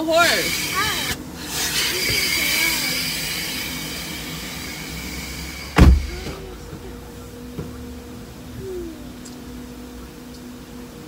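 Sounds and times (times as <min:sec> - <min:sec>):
power window motor whirring: 0:00.0 - 0:06.8
heavy thud: 0:05.8 - 0:06.5.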